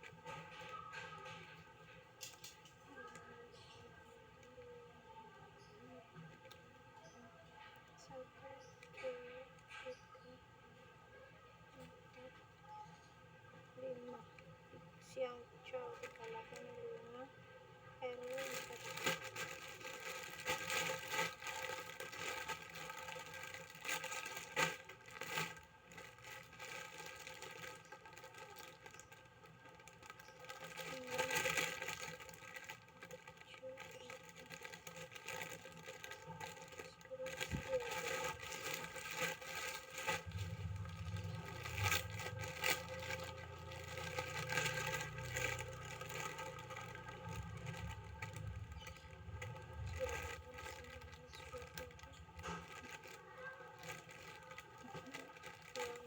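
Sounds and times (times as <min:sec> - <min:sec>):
steady background hum: 0:00.0 - 0:56.0
plastic packaging rustling: 0:15.2 - 0:17.1, 0:18.0 - 0:56.0.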